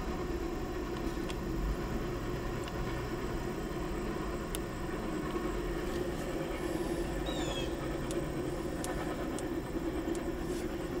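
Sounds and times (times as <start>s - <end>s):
vehicle engines idling: 0.0s - 11.0s
faint ticks: 0.8s - 1.5s, 4.4s - 6.3s, 7.8s - 11.0s.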